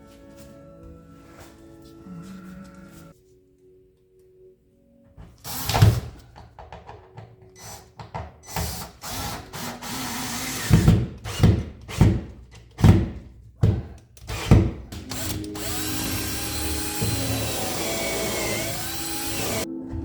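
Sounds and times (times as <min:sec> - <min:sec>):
power drill bursts: 0:05.4 - 0:06.1, 0:07.6 - 0:12.1, 0:14.3 - 0:19.7.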